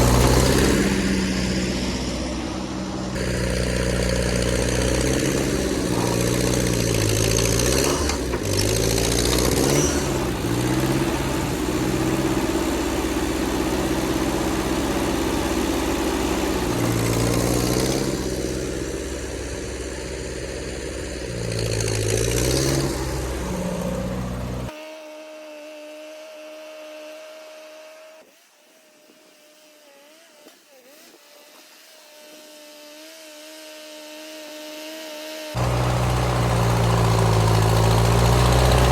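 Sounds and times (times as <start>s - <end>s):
tractor engine revving: 0.0s - 24.7s, 35.6s - 38.9s.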